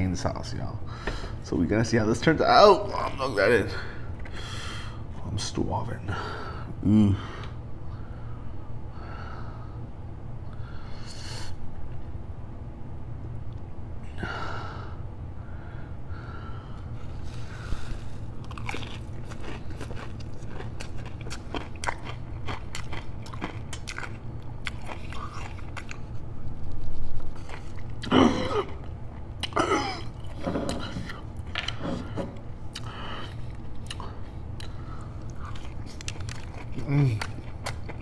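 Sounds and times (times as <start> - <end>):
wet chewing and crunching: 18.1 - 26.2, 27.1 - 31.8, 32.7 - 38.0.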